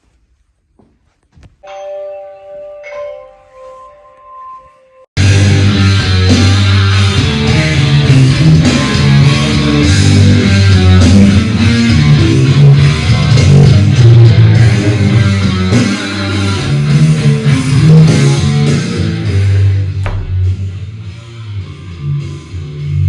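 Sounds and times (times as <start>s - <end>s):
loud rock music through speakers: 5.2s - 23.0s.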